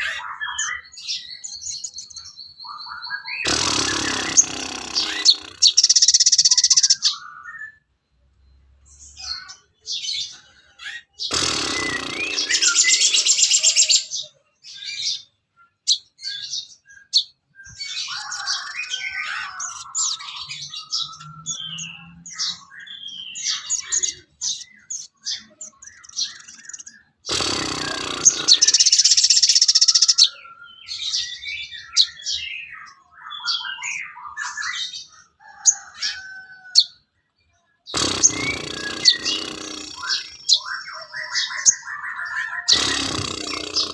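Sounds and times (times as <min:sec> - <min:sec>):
songbirds chirping: 0:00.0 - 0:43.9
fast bird trills: 0:01.8 - 0:07.4, 0:10.9 - 0:14.2, 0:22.4 - 0:30.4, 0:37.9 - 0:43.9.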